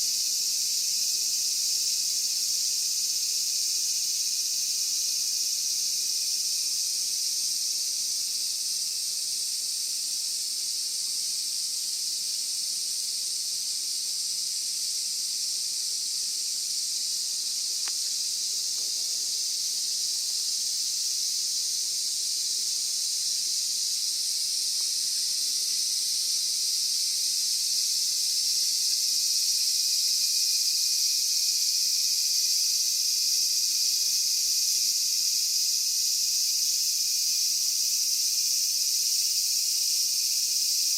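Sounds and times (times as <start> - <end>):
high-pitched insect chorus: 0.0 - 40.9.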